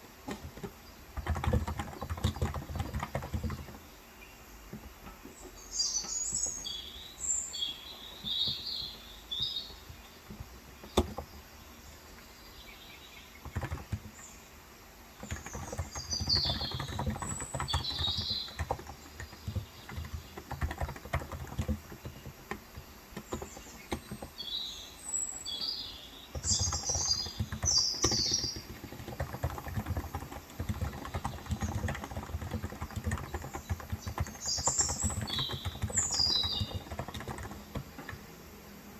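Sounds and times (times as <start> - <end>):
rapid keyboard typing: 0.0 - 4.0, 8.0 - 11.5, 13.4 - 14.4, 15.2 - 24.6, 26.2 - 38.5
small birds chirping: 0.0 - 38.9.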